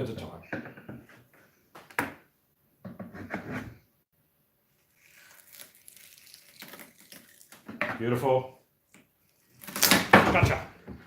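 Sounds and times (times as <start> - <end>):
tape tearing and scraping: 4.8 - 7.8, 8.9 - 10.3.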